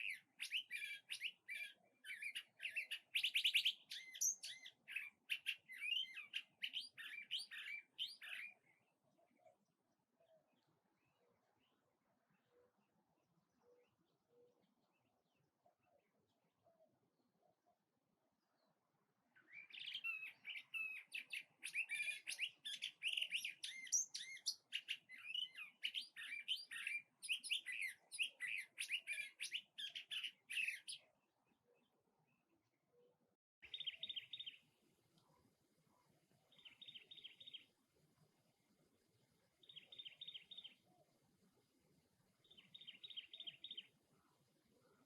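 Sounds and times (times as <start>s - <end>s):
songbird whistled melodious song: 0.0s - 9.6s, 19.4s - 31.1s, 33.0s - 34.7s, 36.5s - 37.7s, 39.6s - 41.0s, 42.4s - 43.9s.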